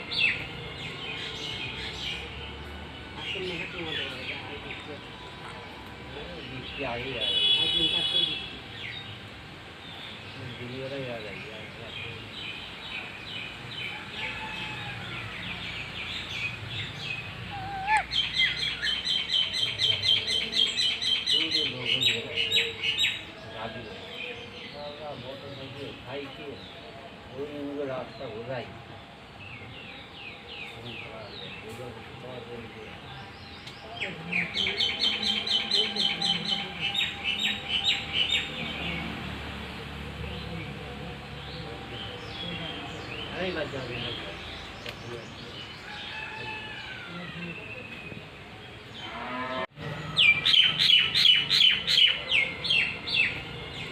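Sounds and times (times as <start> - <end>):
parrots chirping: 16.2 - 20.3.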